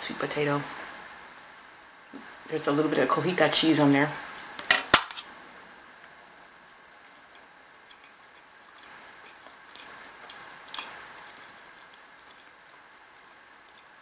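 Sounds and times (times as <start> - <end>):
quiet chewing: 6.0 - 14.0.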